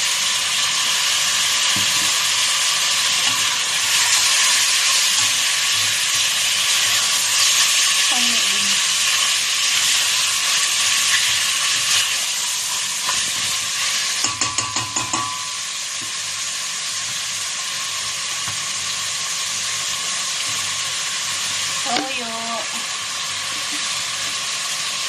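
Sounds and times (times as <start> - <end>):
chicken and onion sizzling in oil: 0.0 - 25.0
spatula knocking against metal pot: 14.2 - 15.6.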